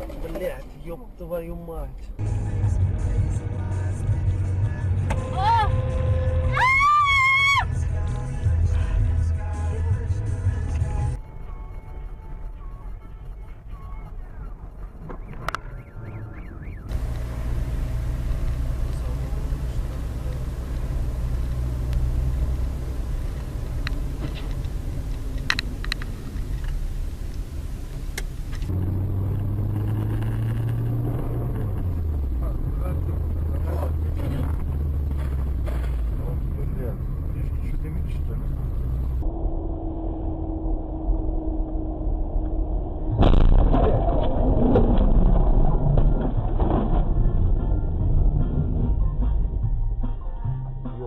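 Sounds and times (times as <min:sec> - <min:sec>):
car engine and road noise: 0:00.0 - 0:51.0.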